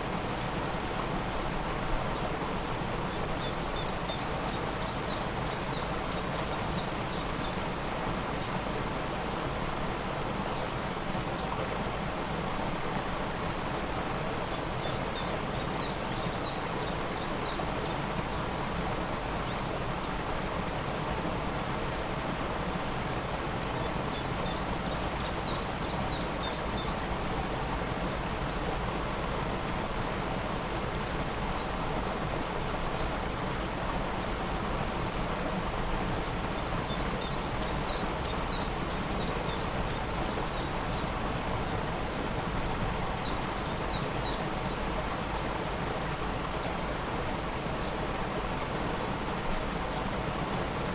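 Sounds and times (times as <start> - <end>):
waterfall rushing: 0.0 - 50.9
small bird singing: 14.8 - 18.5, 36.2 - 41.1, 43.2 - 45.5.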